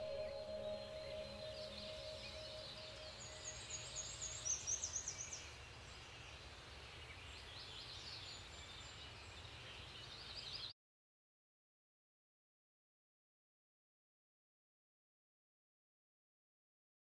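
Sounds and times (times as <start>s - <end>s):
birds twittering: 0.0s - 6.3s
steady outdoor hiss: 0.0s - 10.7s.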